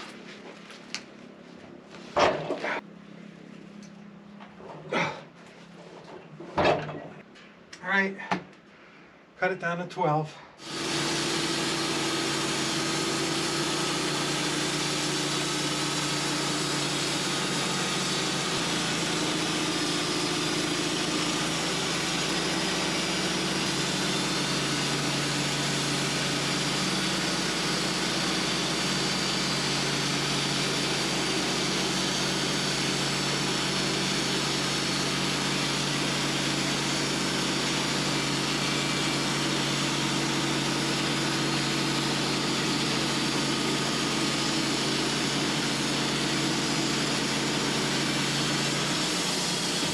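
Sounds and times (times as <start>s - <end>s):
saw blade cutting log: 10.6s - 49.9s
sawmill engine running: 10.6s - 49.9s.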